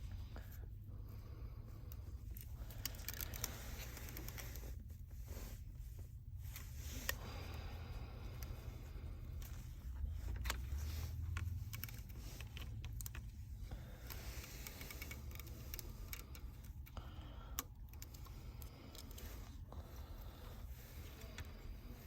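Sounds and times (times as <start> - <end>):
steady low hum: 0.0 - 22.0
phone parts clicking and tapping: 10.2 - 13.4.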